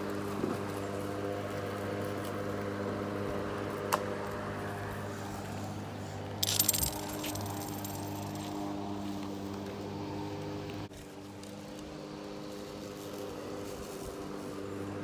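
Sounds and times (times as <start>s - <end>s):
mechanical hum: 0.0s - 15.0s
clattering: 6.4s - 8.4s.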